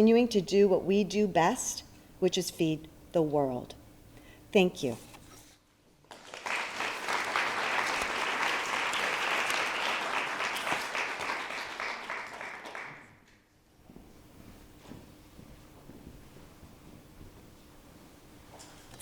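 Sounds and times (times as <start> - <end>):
audience applauding: 6.1 - 13.2.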